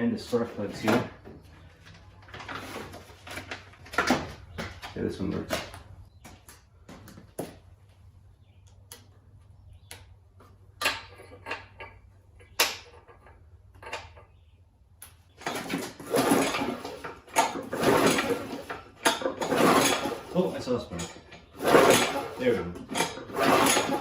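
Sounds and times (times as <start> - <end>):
recoil starter rattling rush: 15.4 - 24.0.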